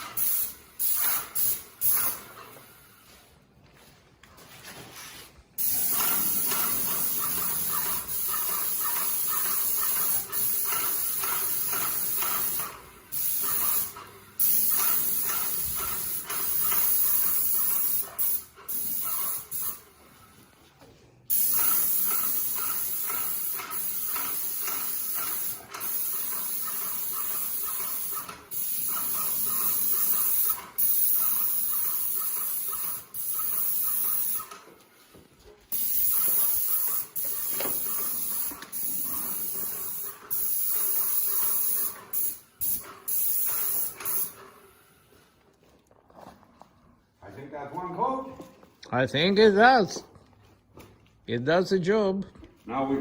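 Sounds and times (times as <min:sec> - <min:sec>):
paint sprayer hissing: 0:00.0 - 0:03.3, 0:05.6 - 0:20.6, 0:21.3 - 0:45.3.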